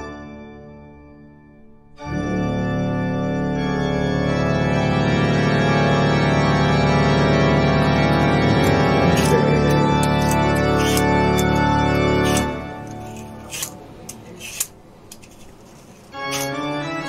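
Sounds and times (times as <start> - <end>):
sustained organ chord: 0.0 - 13.5, 16.2 - 17.0.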